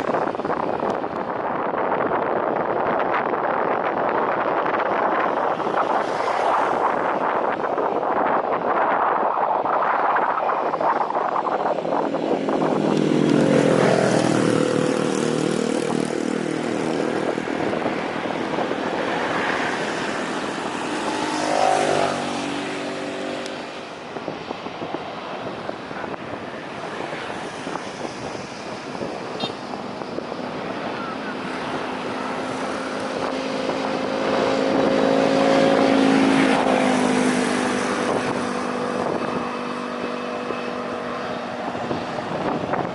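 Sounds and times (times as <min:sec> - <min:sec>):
engines passing by: 0:00.0 - 0:42.9
steady rushing noise: 0:00.0 - 0:42.9.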